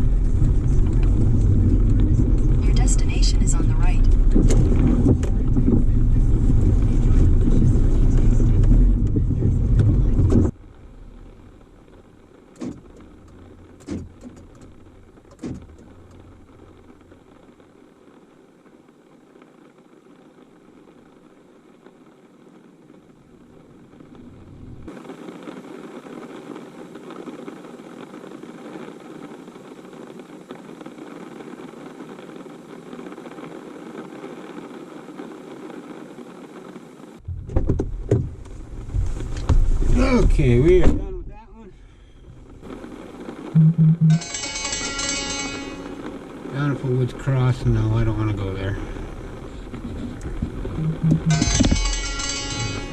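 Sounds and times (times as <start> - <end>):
loud low rumble: 0.0 - 17.5, 46.0 - 52.9
car engine and road noise: 0.0 - 52.9.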